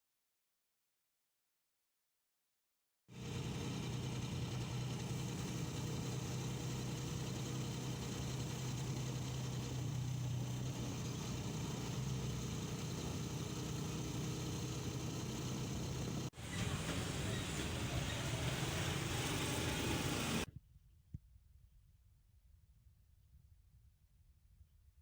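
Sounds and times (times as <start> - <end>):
low engine hum: 3.2 - 20.5
noisy hiss: 16.3 - 20.5.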